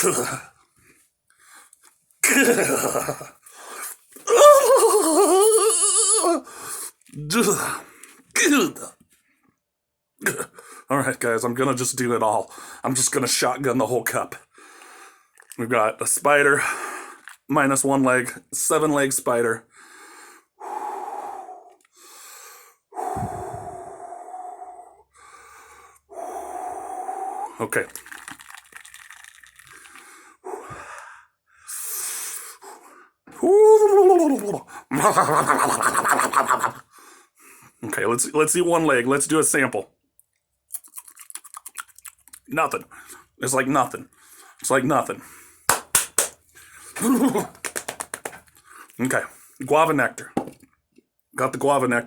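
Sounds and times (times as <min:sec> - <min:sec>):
man coughing: 0:00.0 - 0:00.5, 0:02.2 - 0:03.3, 0:10.2 - 0:10.6, 0:47.0 - 0:47.6
man breathing heavily: 0:03.4 - 0:04.0, 0:06.4 - 0:07.0, 0:19.7 - 0:27.6, 0:29.7 - 0:33.4, 0:36.9 - 0:37.8
man groaning: 0:04.3 - 0:06.4, 0:07.2 - 0:07.8, 0:33.3 - 0:34.7, 0:47.0 - 0:47.6.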